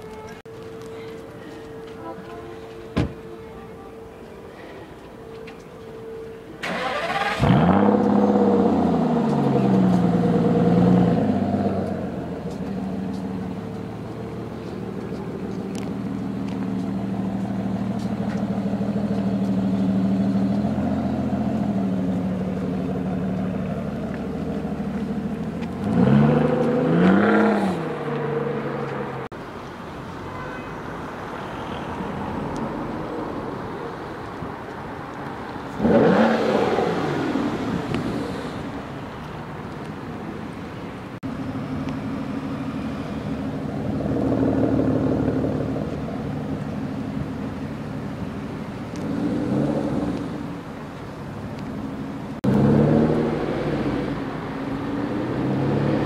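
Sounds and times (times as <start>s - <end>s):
car engine idling: 6.0s - 26.7s
engine revving: 6.6s - 12.2s, 25.2s - 29.2s, 35.7s - 37.8s, 52.4s - 56.0s.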